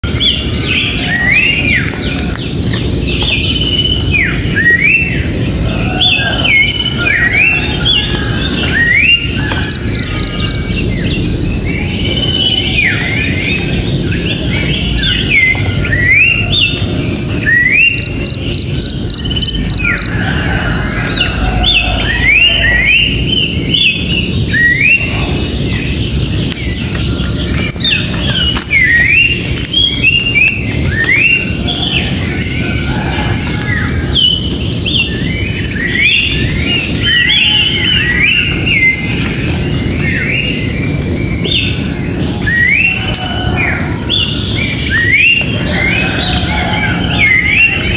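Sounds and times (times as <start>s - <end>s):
birds singing whistled notes: 0.0s - 47.9s
steady high-pitched drone: 0.0s - 47.9s.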